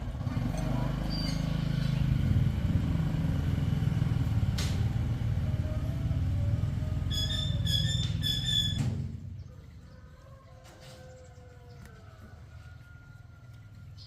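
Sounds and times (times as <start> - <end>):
motorcycle engine rumbling: 0.0 - 9.8.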